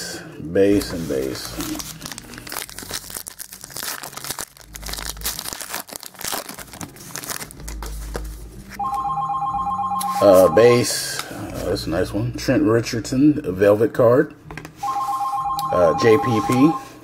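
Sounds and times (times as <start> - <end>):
foil wrapper tearing and crinkling: 0.9 - 8.4
phone ringing two-tone: 8.8 - 10.8, 14.8 - 17.0.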